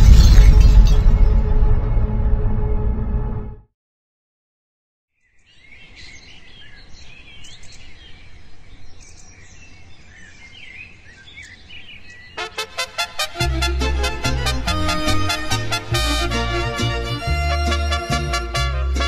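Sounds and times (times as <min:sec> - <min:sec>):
birds chirping and singing: 0:05.2 - 0:12.6
music with quick notes: 0:12.4 - 0:19.0.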